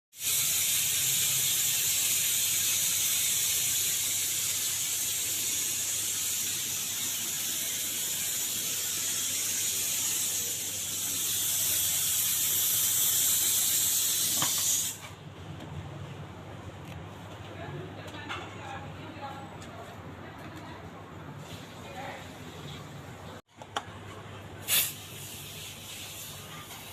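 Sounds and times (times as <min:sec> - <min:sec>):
high-pressure spray jet hissing: 0:00.2 - 0:15.0, 0:24.7 - 0:26.8.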